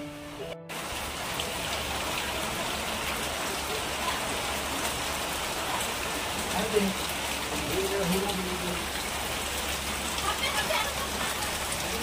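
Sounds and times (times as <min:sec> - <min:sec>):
heavy rain on a metal roof: 0:00.0 - 0:12.0.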